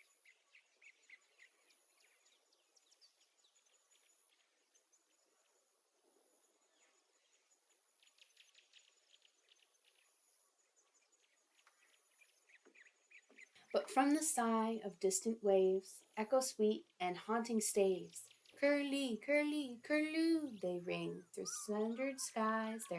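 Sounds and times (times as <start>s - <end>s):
small bird chirps: 0.0s - 13.8s, 18.1s - 18.6s, 20.4s - 22.9s.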